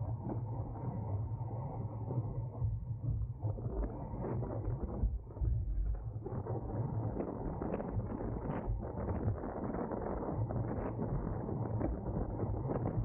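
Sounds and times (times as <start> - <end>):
wind buffeting microphone: 6.4 - 13.0.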